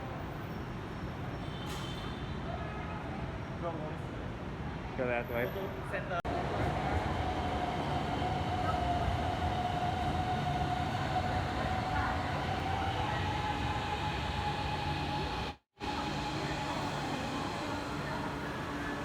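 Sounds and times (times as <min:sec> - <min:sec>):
electric train rumbling: 0:06.3 - 0:19.0
train whine rising in pitch: 0:06.4 - 0:19.0.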